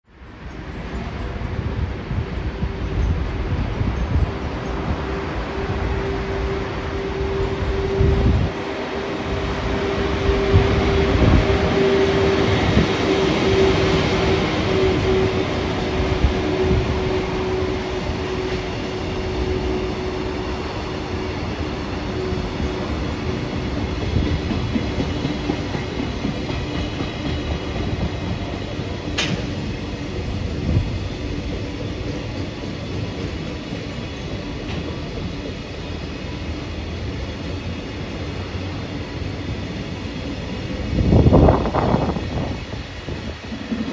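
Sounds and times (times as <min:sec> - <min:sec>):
electric train rumble: 0:00.0 - 0:43.9
train whine: 0:00.0 - 0:43.9
sharp click: 0:29.1 - 0:29.6.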